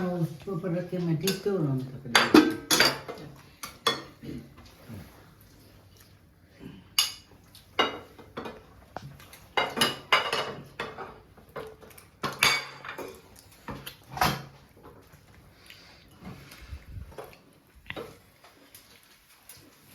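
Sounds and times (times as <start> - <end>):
metal spoons and dishes clinking: 2.1 - 4.2, 9.6 - 13.2.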